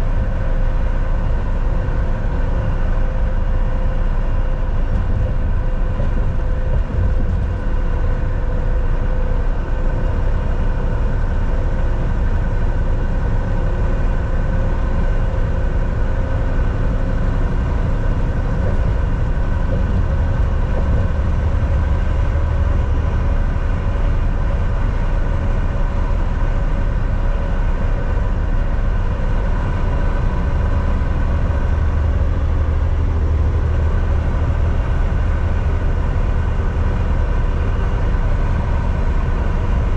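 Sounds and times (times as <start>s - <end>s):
road and tyre rumble: 0.0s - 39.9s
truck engine drone: 0.0s - 39.9s.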